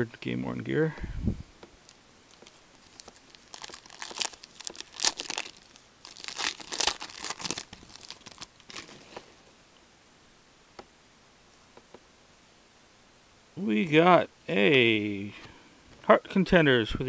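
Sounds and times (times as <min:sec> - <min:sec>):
foil wrapper tearing and crinkling: 0:02.3 - 0:09.1.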